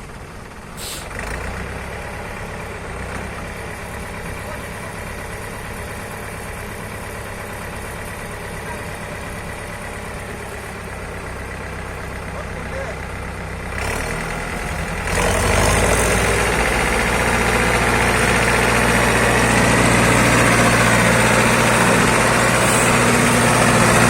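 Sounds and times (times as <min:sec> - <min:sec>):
tractor engine running: 0:00.0 - 0:24.0
short hiss: 0:00.8 - 0:01.1.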